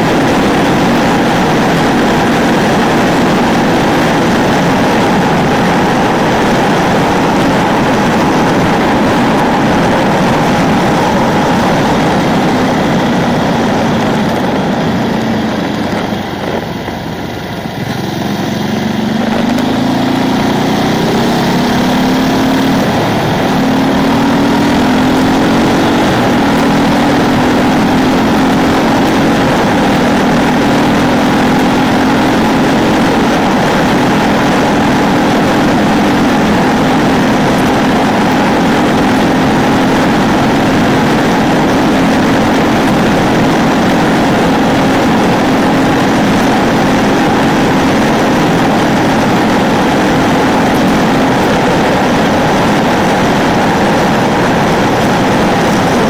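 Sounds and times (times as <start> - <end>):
motorcycle engine under load: 0.0 - 56.0.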